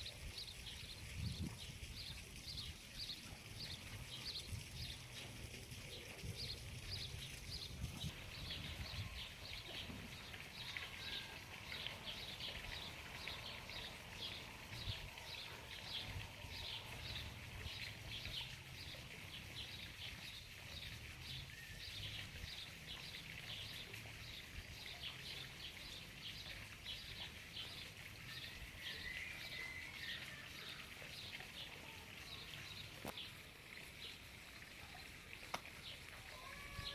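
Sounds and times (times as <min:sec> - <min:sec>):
small animal high short call: 0:36.2 - 0:36.9.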